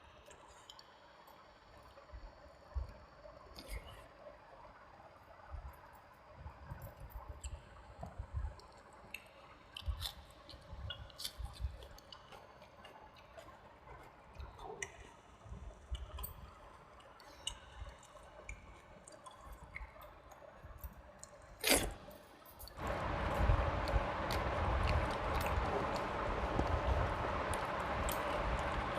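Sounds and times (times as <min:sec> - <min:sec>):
wet chewing sounds: 0:08.6 - 0:15.1, 0:22.8 - 0:28.9.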